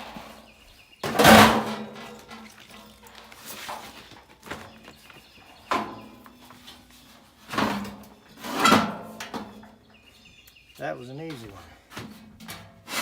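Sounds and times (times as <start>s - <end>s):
metal clanks and scrapes: 1.0s - 4.3s, 5.7s - 9.8s, 12.0s - 13.0s.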